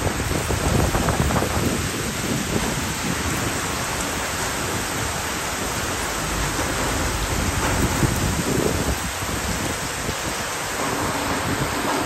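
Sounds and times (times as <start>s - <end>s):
heavy rain pouring: 0.0s - 12.0s
low rumble: 5.0s - 9.8s.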